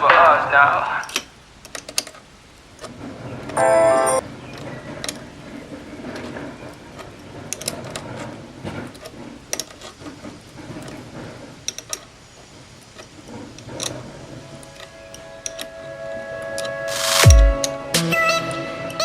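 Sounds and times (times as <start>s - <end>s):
mechanical clicking and clanking: 4.5s - 15.7s.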